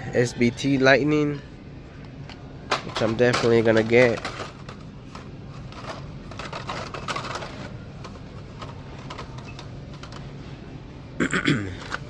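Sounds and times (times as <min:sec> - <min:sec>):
low store hum: 0:00.0 - 0:12.0
plastic toy packaging rattles: 0:02.7 - 0:10.3.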